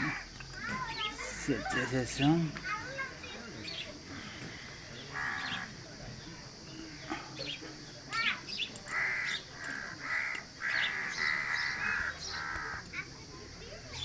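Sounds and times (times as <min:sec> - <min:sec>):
crows cawing: 0:00.0 - 0:02.0, 0:04.1 - 0:05.9, 0:08.2 - 0:13.1
bird chirps: 0:06.7 - 0:13.0.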